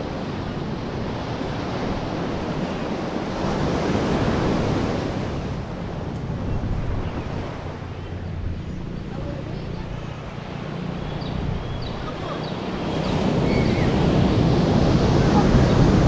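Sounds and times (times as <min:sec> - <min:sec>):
sea waves washing: 0:00.0 - 0:16.0
wind on microphone: 0:00.0 - 0:16.0.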